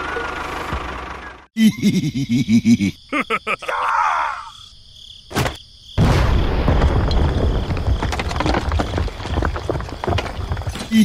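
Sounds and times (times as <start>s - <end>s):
rumbling crash with crackling knocks: 5.4s - 11.0s.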